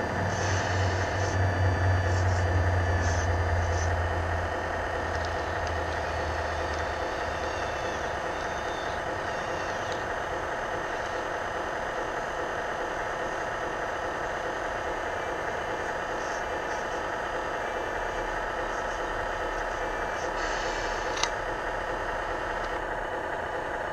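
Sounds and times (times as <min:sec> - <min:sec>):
hydraulic pump hum and whine: 0:00.0 - 0:23.9.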